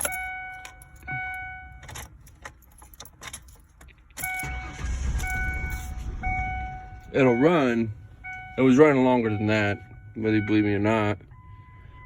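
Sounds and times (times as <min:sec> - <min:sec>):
dashboard warning chime: 0:00.0 - 0:03.1, 0:04.2 - 0:12.0
engine turning over: 0:04.2 - 0:07.1.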